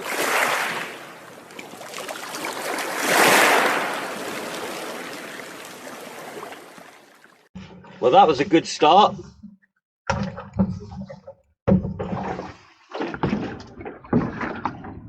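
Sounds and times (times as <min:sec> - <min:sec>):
sea water washing and splashing: 0:00.0 - 0:07.5.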